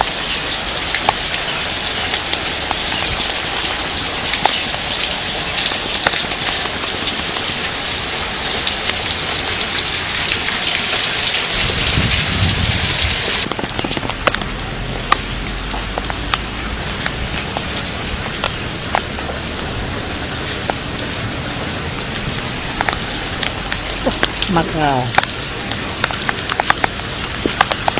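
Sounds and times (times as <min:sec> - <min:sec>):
hailstones knocking: 0:00.0 - 0:17.7, 0:22.1 - 0:27.9
heavy rain and hail: 0:00.0 - 0:27.9
low rumble: 0:11.5 - 0:24.5.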